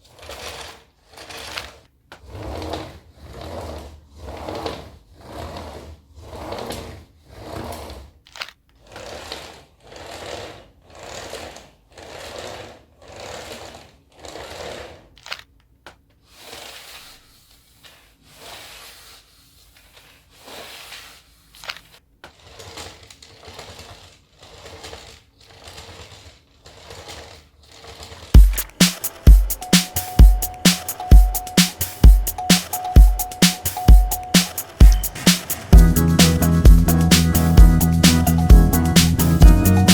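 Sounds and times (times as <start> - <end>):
vacuum brush rollers on hard floor: 0.1 - 8.1.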